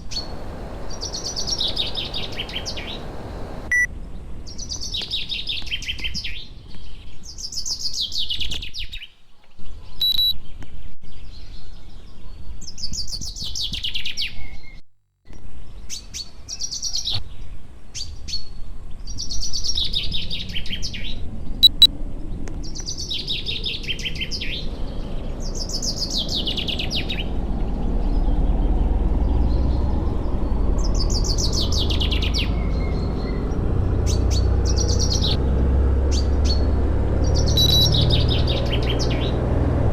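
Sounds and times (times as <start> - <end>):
low rushing noise: 0.0 - 3.9
songbird singing trilled phrase: 21.6 - 21.9, 37.6 - 38.9.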